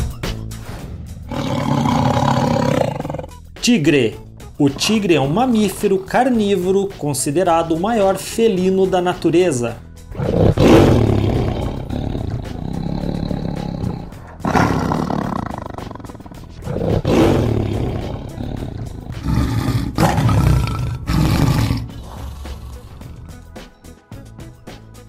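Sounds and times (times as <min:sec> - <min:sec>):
tiger roaring: 0:01.3 - 0:03.4, 0:10.1 - 0:23.4.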